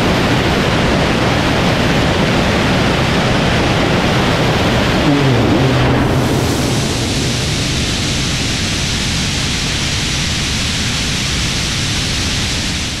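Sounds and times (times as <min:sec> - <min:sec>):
rocket engine firing: 0:03.8 - 0:10.8.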